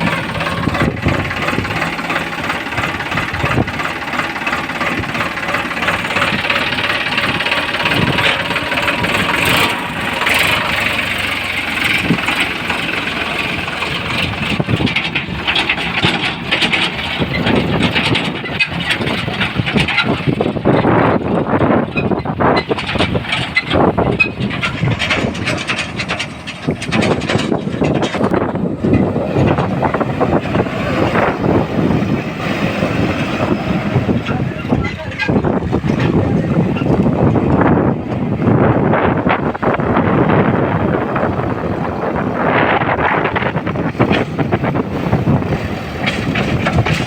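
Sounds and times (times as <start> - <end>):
knocks and clatter: 0.0 - 38.2, 42.7 - 47.0
heavy machinery diesel engine: 0.0 - 47.0.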